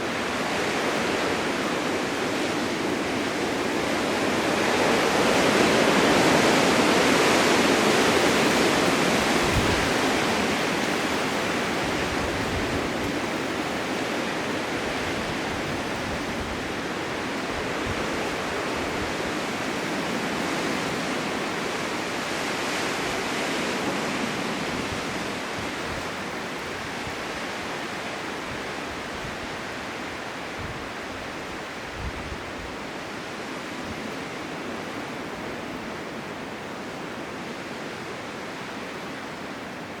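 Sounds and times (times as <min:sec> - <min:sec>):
blizzard wind rushing: 0:00.0 - 0:40.0.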